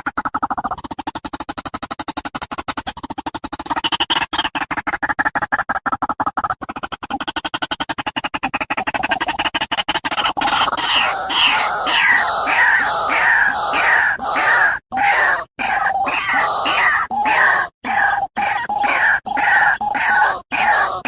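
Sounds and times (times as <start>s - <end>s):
animal calling harshly: 10.0s - 21.0s.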